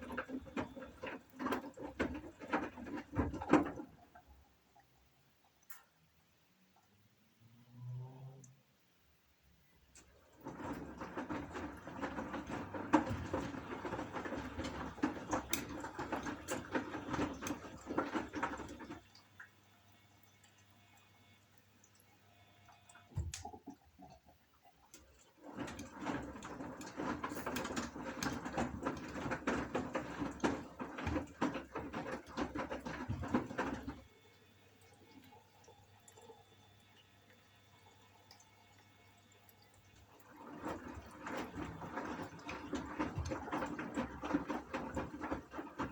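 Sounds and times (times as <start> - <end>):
washing machine sloshing and tumbling: 0.0 - 5.1, 9.9 - 45.9
washing machine knock: 25.5 - 34.0.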